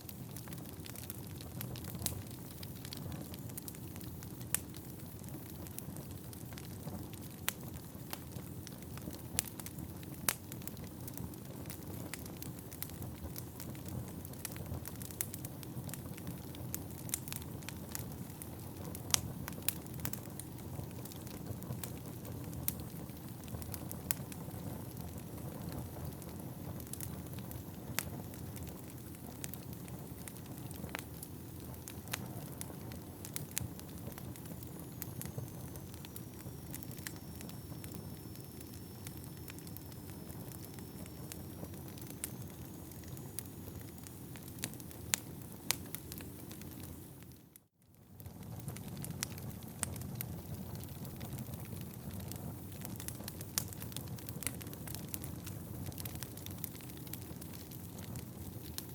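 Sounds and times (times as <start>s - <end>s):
wood fire crackling: 0.0s - 58.9s
faint high whistle: 34.5s - 44.4s.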